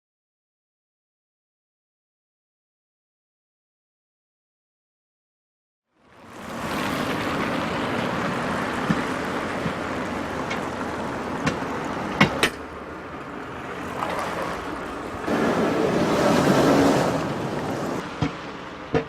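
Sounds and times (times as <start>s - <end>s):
car road and engine noise: 5.9s - 19.0s
sharp knocks: 8.8s - 10.7s, 11.4s - 12.7s, 18.0s - 19.0s.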